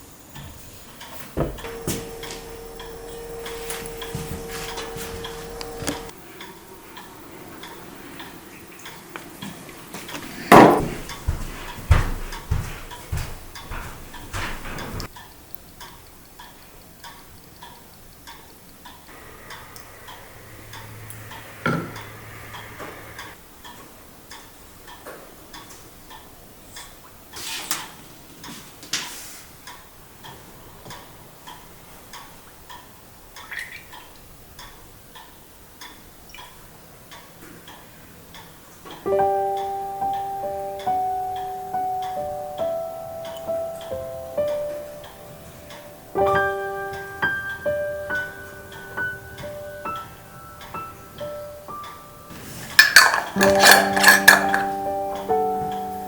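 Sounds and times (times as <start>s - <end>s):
steady ticking: 1.0s - 9.1s, 11.1s - 26.4s
piano music: 1.4s - 6.7s, 39.0s - 56.0s
knocks and clatters: 10.0s - 15.1s, 52.6s - 54.8s.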